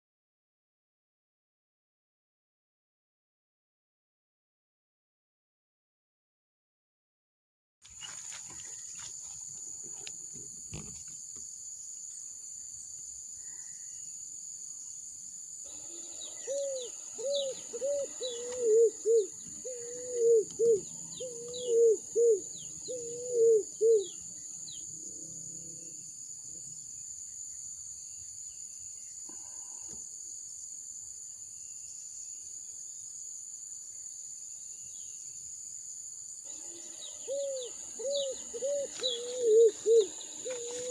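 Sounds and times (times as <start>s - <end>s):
insects droning: 7.8s - 40.9s
bird hooting: 15.7s - 24.2s, 36.5s - 40.9s
birds chirping: 15.7s - 24.9s, 36.5s - 40.9s.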